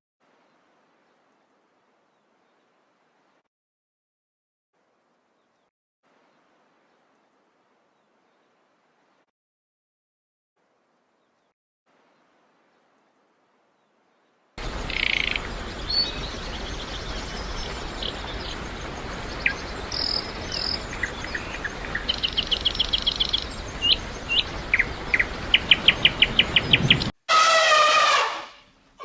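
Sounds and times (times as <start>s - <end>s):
steady background hiss: 14.6s - 27.1s
birds chirping and calling: 14.6s - 27.2s.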